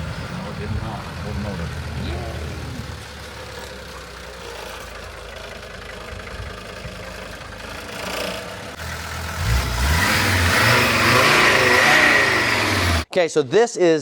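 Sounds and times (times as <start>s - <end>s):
diesel engine heard from cabin: 0.0s - 8.9s.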